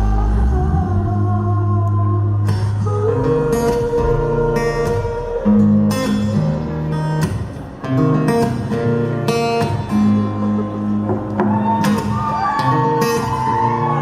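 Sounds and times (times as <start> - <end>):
held bass notes: 0.0 - 9.3
strummed acoustic guitar: 2.4 - 14.0.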